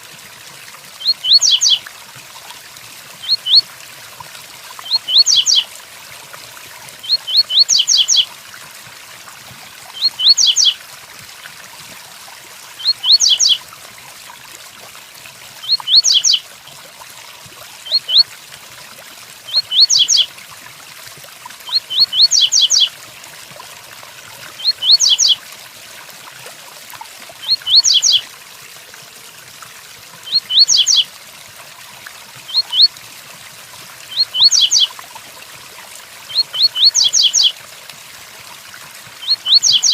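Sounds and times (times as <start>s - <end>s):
steady rain: 0.0s - 0.3s
bird singing short high phrase: 1.0s - 1.8s, 30.3s - 31.0s.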